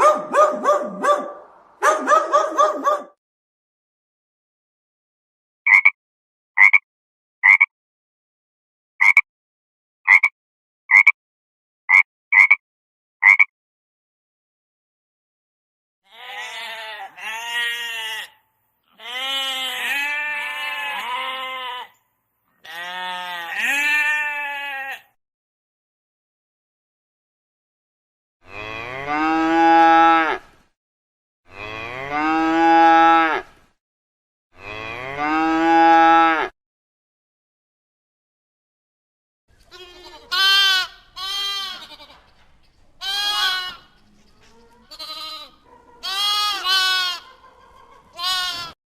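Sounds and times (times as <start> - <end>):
cow mooing: 28.4 - 30.4, 31.5 - 33.5, 34.6 - 36.5.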